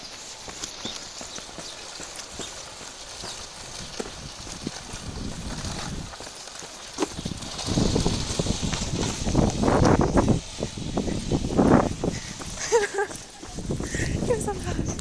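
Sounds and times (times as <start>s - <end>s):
small vehicle clattering over ground: 1.6s - 13.3s.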